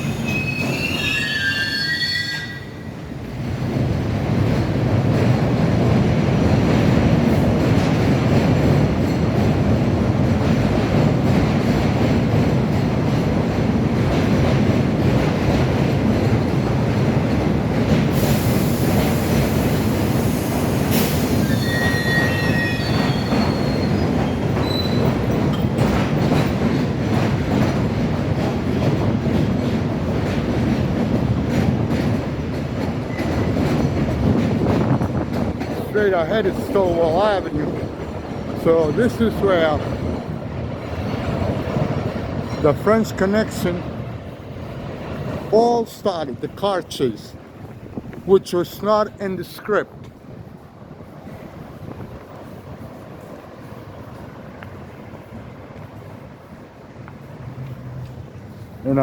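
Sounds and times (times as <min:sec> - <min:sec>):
wheel squeal: 0:00.0 - 0:02.9, 0:21.0 - 0:25.3
subway train rumbling: 0:00.0 - 0:59.0.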